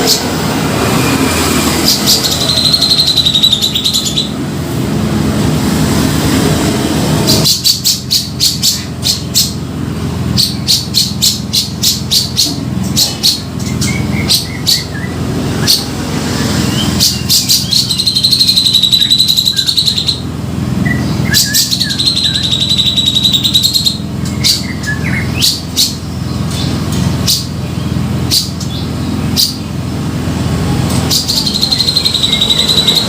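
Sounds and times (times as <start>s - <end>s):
buzzy bird trills: 0.0s - 4.4s, 10.2s - 29.9s, 30.9s - 33.0s
steady low hum: 0.0s - 33.0s
bird calling: 1.0s - 4.4s, 10.3s - 29.8s, 31.1s - 33.0s.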